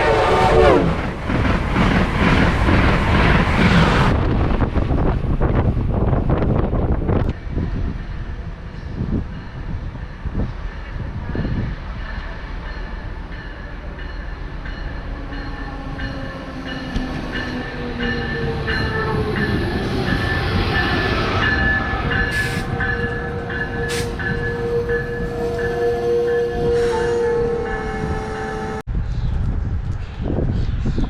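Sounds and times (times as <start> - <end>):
train rumbling past: 0.0 - 31.0
steady tones: 11.6 - 28.8.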